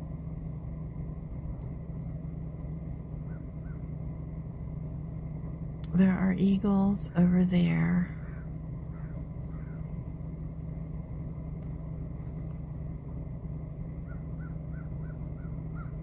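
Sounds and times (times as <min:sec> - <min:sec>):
vehicle engine idling: 0:00.0 - 0:16.0
faint bird calls: 0:03.2 - 0:04.0, 0:08.1 - 0:10.0, 0:14.0 - 0:16.0.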